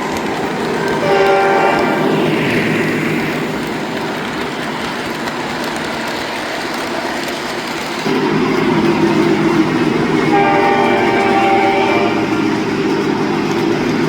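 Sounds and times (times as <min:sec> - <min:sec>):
model train running on track: 0:00.0 - 0:14.0
train horn: 0:00.9 - 0:02.4, 0:10.2 - 0:12.6.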